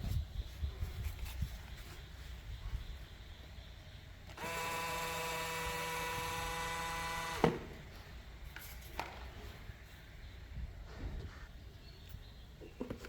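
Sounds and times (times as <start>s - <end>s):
small electric motor whining: 4.3s - 7.8s.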